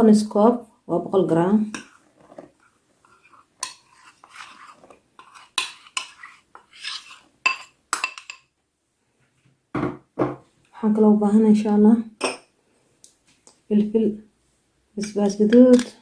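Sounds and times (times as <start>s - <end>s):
utensils clinking against a bowl: 3.6s - 8.4s, 15.0s - 16.0s.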